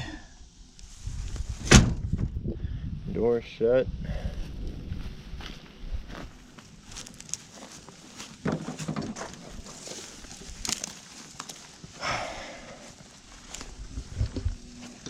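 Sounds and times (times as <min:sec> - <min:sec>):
footsteps: 0:04.3 - 0:15.0
scraping rustle: 0:06.8 - 0:11.9.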